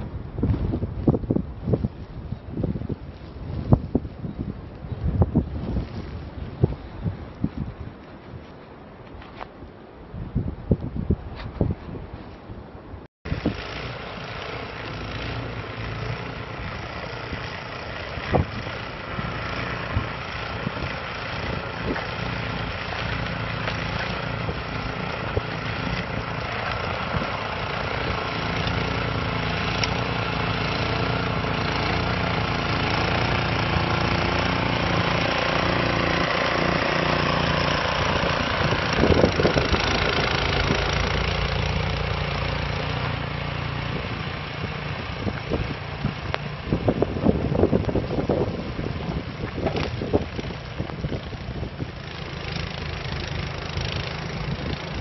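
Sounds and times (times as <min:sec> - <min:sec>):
wind noise: 0:00.0 - 0:55.0
snowblower engine running: 0:13.3 - 0:55.0.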